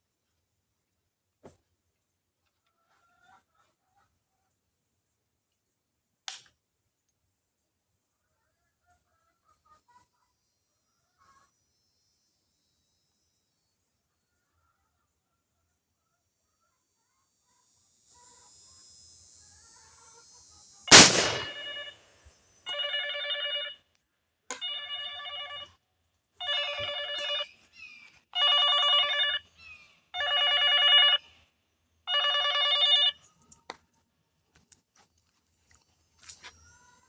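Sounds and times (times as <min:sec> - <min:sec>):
gunshot: 0:20.9 - 0:21.8.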